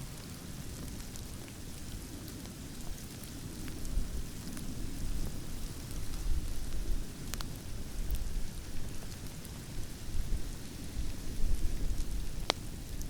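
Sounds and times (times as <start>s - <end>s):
campfire crackling and popping: 0.0s - 13.0s
low rumble of wind: 0.0s - 13.0s.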